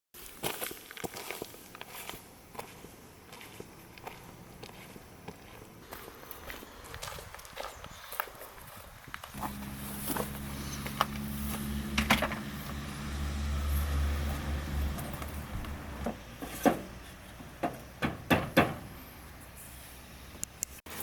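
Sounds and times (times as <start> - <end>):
low mechanical hum: 9.3 - 20.7
sharp knocks and clicks: 15.1 - 18.9.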